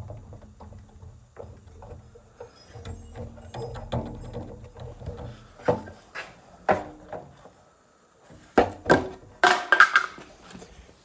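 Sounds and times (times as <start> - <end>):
wooden knocks and clatter: 0.0 - 7.5, 8.6 - 10.7.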